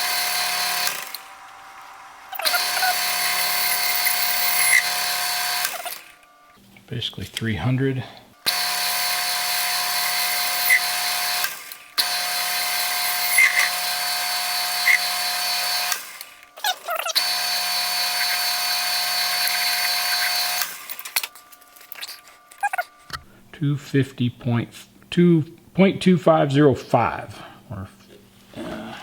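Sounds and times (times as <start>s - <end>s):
metal lathe whining: 0.0s - 6.5s, 8.5s - 23.0s.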